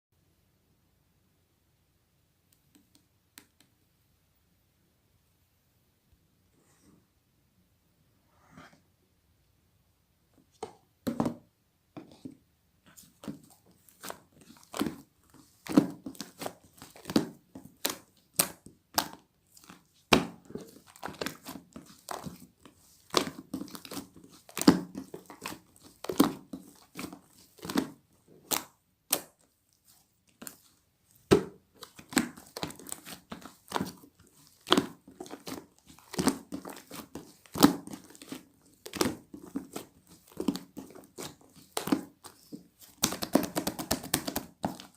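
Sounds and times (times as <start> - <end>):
crinkling and crunching: 13.0 - 44.9.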